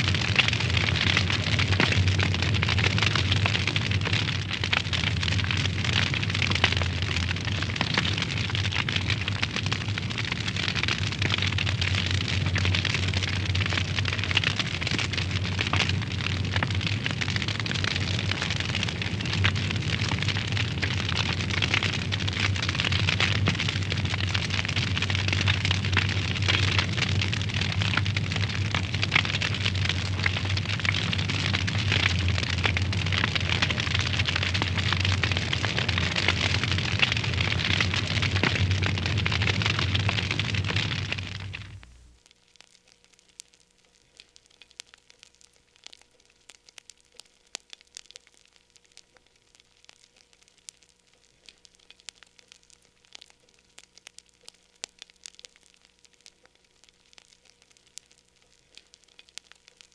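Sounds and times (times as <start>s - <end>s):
wood fire crackling and popping: 0.0s - 59.9s
steady low hum: 15.2s - 42.2s.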